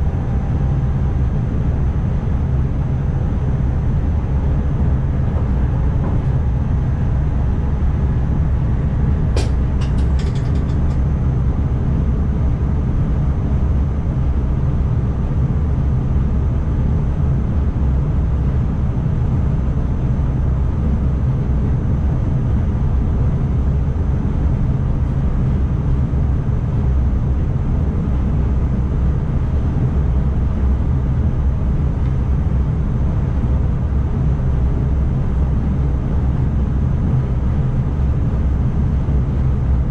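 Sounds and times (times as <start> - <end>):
electric train rumbling: 0.0 - 16.3.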